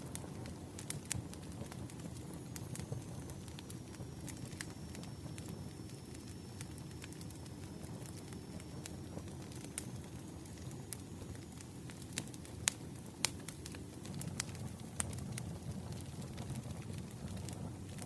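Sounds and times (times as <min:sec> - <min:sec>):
low rumble of flames: 0:00.0 - 0:18.0
wood fire crackling and popping: 0:00.0 - 0:18.0.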